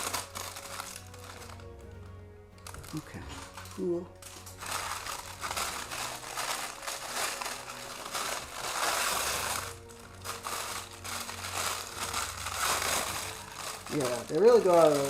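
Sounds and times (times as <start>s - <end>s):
packaging crinkling and rustling: 0.0s - 1.9s, 2.6s - 15.0s.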